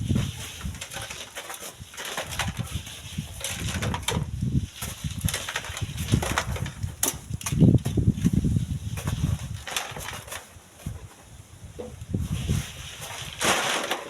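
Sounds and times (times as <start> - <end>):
wind buffeting microphone: 0.0 - 1.0, 2.3 - 10.2, 10.8 - 13.4.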